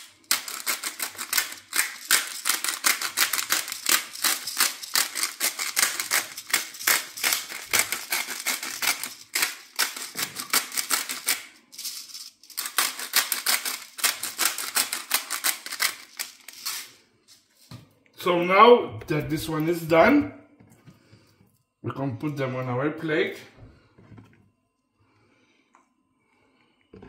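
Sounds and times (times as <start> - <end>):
pepper mill grinding clicks: 0.0 - 16.9.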